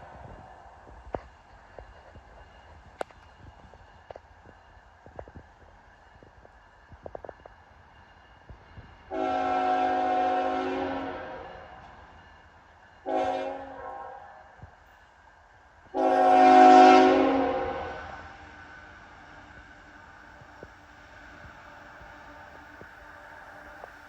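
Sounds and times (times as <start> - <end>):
locomotive air horn blasts: 9.1 - 11.5, 13.1 - 14.2, 15.9 - 18.2.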